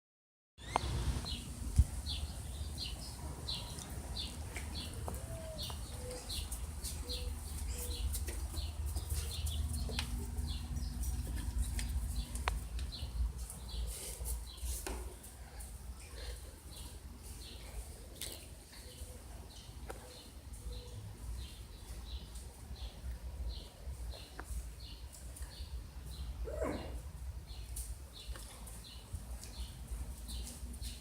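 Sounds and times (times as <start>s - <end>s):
bird chirping: 0.6s - 14.7s.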